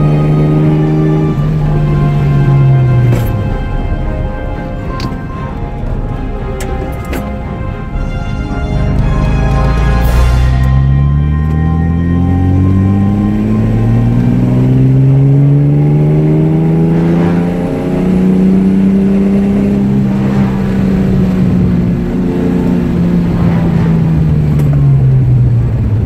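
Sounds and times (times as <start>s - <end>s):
car engine heard from inside: 9.0s - 26.0s.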